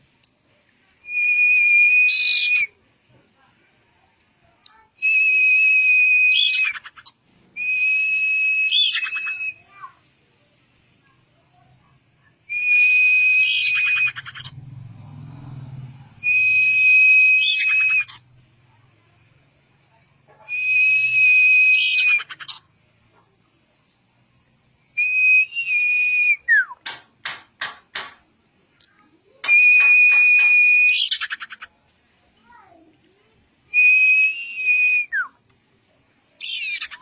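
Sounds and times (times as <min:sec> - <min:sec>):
bird whistling song: 0:01.0 - 0:02.8, 0:05.0 - 0:10.0, 0:12.4 - 0:14.5, 0:16.2 - 0:18.2, 0:20.4 - 0:22.6, 0:24.9 - 0:26.9, 0:29.4 - 0:31.6, 0:33.7 - 0:35.5, 0:36.4 - 0:37.0.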